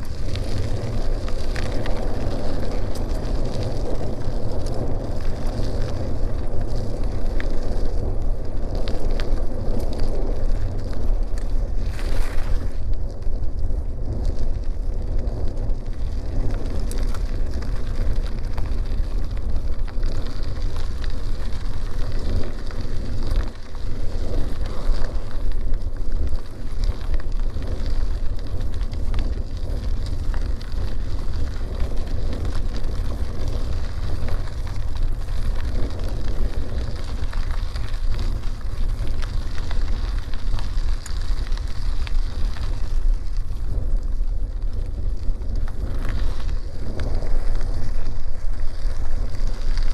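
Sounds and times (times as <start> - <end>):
bicycle tyres crackling on dirt: 0.0 - 49.9
small clicks from grit: 0.0 - 49.9
wind buffeting microphone: 0.0 - 49.9.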